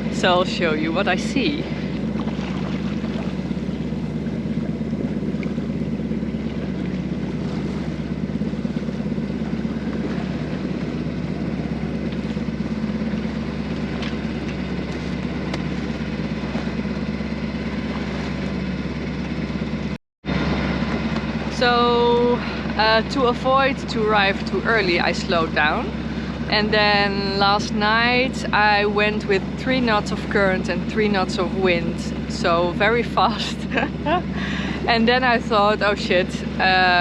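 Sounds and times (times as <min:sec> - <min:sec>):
boat engine droning: 0:00.0 - 0:37.0.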